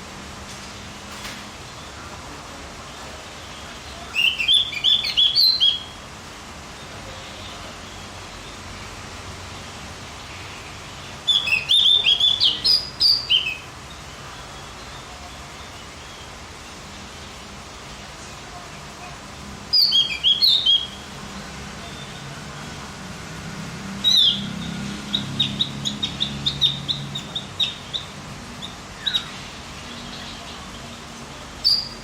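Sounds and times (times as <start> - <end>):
steady hiss: 0.0 - 32.0
songbird chirping: 3.0 - 6.0, 9.6 - 18.1, 19.7 - 22.8, 23.8 - 32.0.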